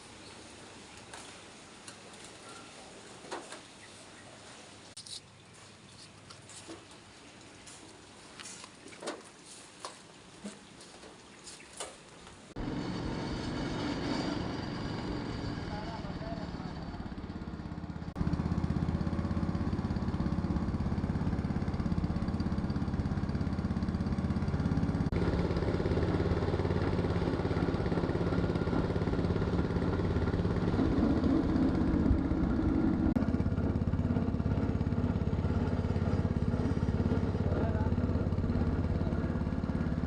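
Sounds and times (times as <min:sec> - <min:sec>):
grinding machine droning: 0:12.6 - 0:40.0.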